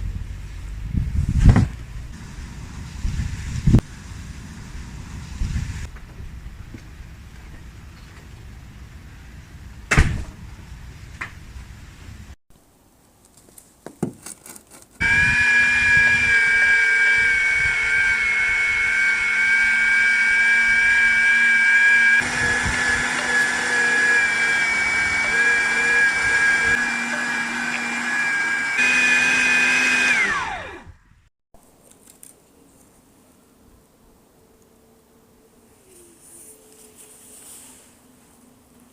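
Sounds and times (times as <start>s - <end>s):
kitchen appliance motor whine: 15.0s - 31.1s.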